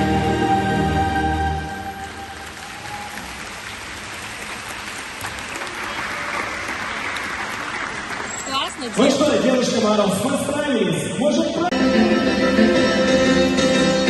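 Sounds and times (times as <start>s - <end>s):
show music: 0.0s - 4.1s, 11.5s - 14.0s
audience applauding: 1.7s - 9.6s.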